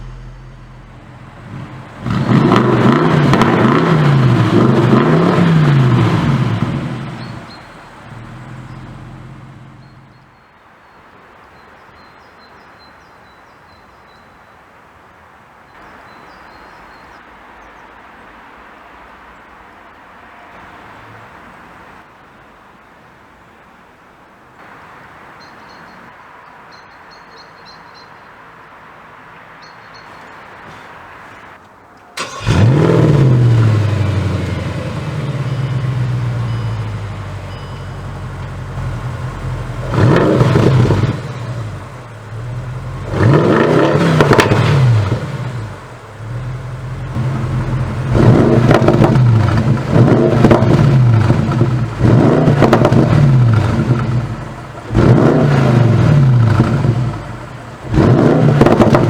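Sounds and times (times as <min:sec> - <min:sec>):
car engine starting and revving: 0:00.0 - 0:10.4, 0:32.2 - 0:59.0.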